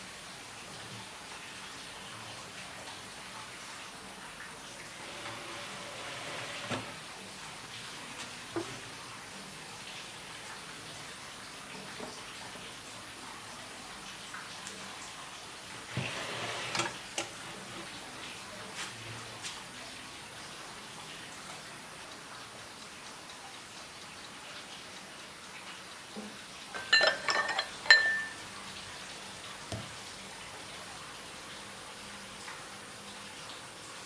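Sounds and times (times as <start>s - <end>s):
dishes clinking: 26.7s - 28.5s.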